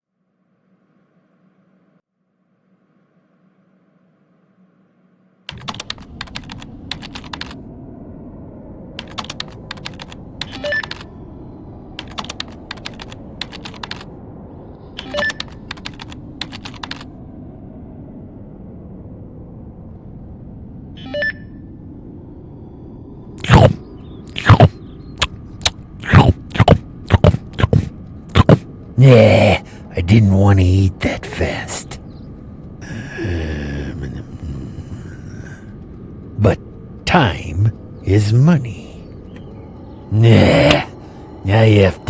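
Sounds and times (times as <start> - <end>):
low background hum: 0.1 - 42.0
typing on a keyboard: 5.5 - 7.6, 9.0 - 11.1, 12.0 - 14.1, 15.0 - 17.1.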